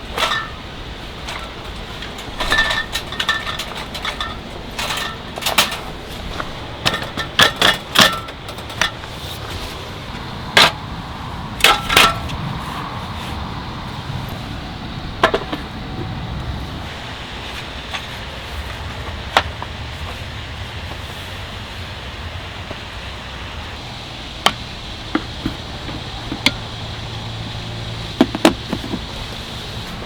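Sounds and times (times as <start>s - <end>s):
low wind rumble: 0.0s - 30.0s
objects being handled: 0.1s - 9.9s.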